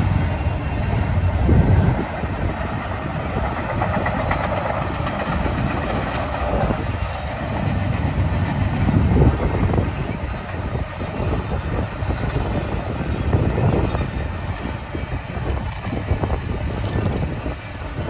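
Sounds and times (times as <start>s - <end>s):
container train rolling past: 0.0s - 18.0s.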